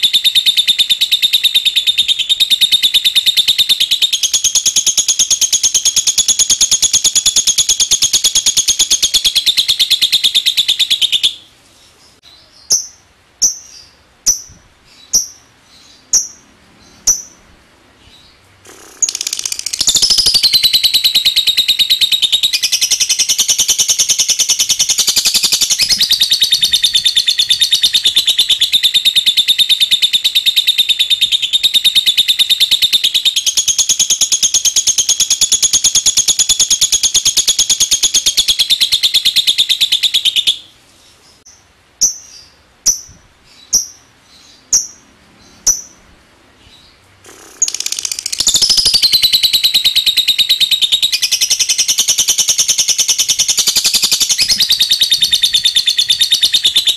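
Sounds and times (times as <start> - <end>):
bird chattering trill: 0.0 - 11.5, 12.2 - 17.4, 18.6 - 40.7, 41.5 - 46.0, 47.2 - 56.9.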